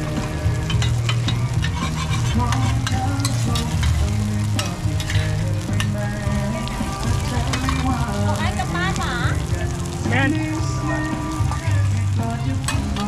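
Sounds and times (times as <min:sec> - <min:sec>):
batter sizzling in metal pans: 0:00.0 - 0:13.0
metal spatula scraping and tapping: 0:00.6 - 0:04.0.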